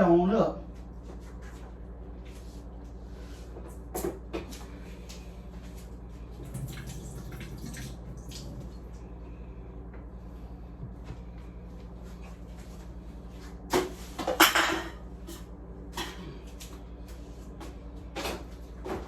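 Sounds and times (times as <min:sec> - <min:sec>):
liquid splashing into a sink: 0:06.4 - 0:09.0.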